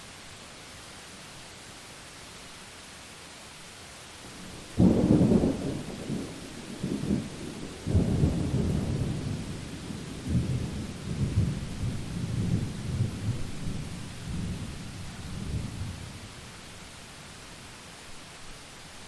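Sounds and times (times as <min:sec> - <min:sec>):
rain hiss: 0:00.0 - 0:19.0
rolling thunder: 0:04.4 - 0:16.2.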